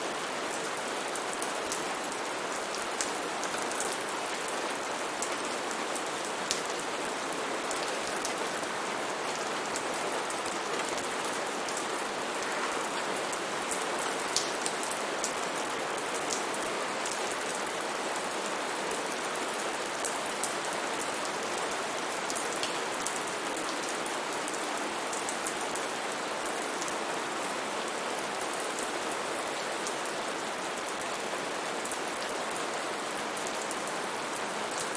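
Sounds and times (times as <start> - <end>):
steady rain hiss: 0.0 - 34.9
raindrops ticking on surfaces: 0.2 - 27.0.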